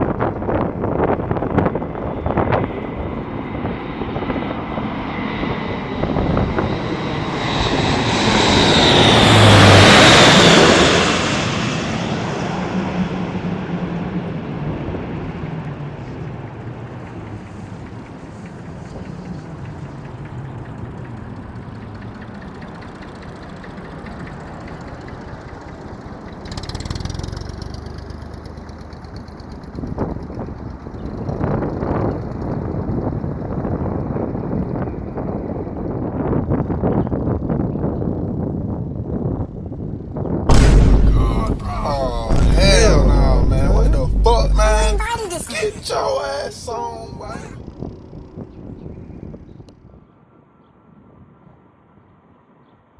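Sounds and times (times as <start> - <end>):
propeller aircraft passing: 0.3 - 33.4.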